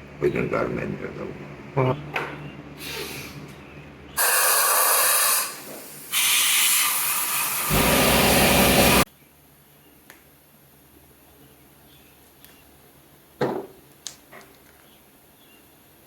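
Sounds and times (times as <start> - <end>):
nozzle hissing blasts: 4.2 - 9.1.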